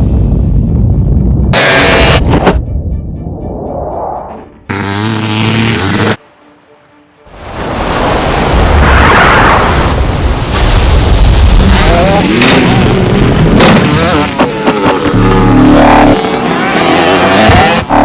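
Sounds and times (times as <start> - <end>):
deep rumble: 0.0 - 4.7.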